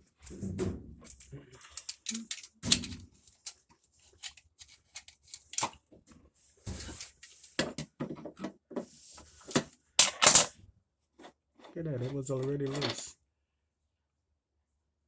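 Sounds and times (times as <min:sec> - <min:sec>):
metal clicks and clanks of tools: 0:01.1 - 0:03.6.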